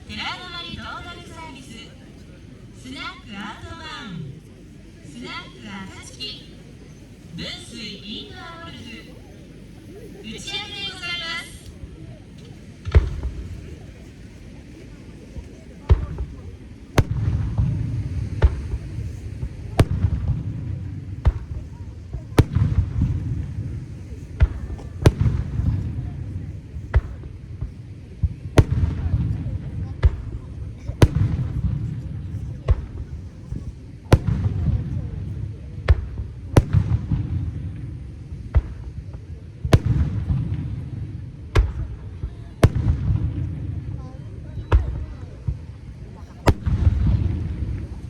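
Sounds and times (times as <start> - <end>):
low rumble of bursts and echoes: 0.0 - 48.0
fireworks bangs: 4.4 - 48.0
firework shells bursting: 11.6 - 26.1, 30.0 - 32.1, 42.6 - 43.5.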